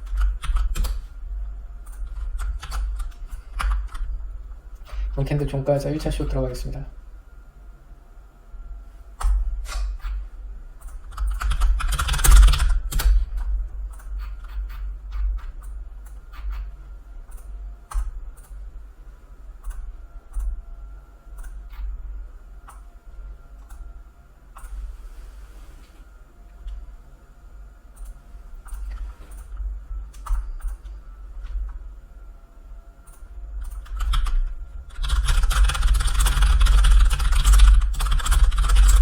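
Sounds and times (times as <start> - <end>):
typing on computer keyboard: 0.0 - 1.0, 1.9 - 4.1, 10.9 - 15.7, 33.6 - 39.0.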